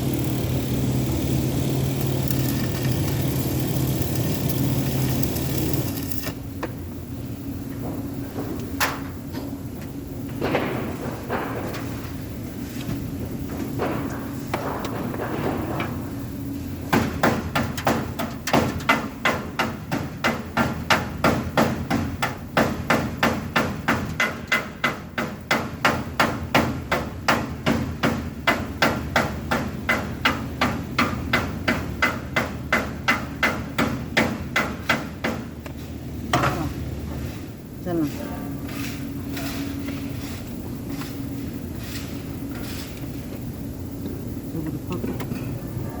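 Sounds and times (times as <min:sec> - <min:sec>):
hammering on metal: 0:16.9 - 0:35.5.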